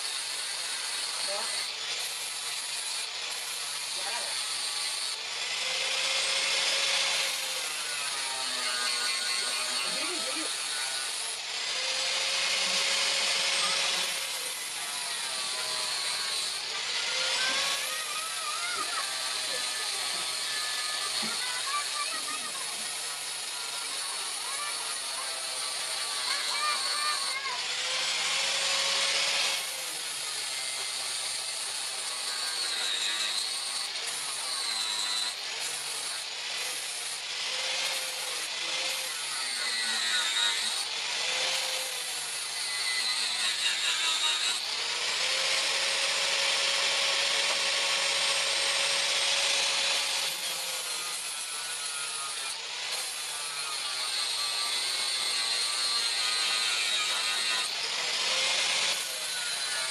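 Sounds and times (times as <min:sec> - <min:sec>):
power tool grinding steel: 0:00.0 - 0:59.9.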